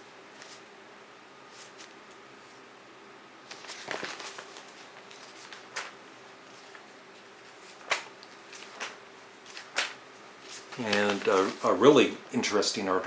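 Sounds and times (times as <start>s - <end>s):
magazine pages turning: 3.5s - 12.0s.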